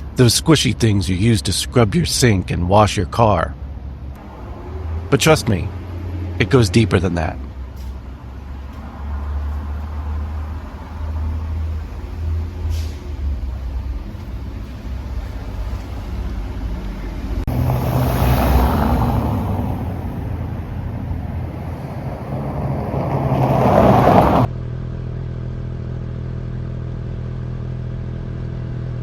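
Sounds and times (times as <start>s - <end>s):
road and wind noise: 0.0s - 26.2s
motorcycle engine humming: 3.6s - 24.5s.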